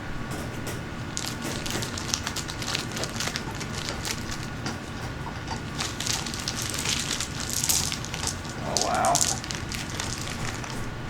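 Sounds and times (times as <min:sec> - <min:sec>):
small stones clicking together: 0:05.4 - 0:10.8.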